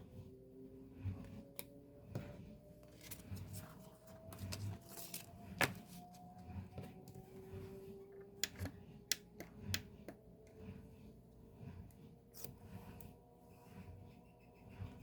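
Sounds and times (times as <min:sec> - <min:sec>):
paper rustling: 0:02.8 - 0:06.2.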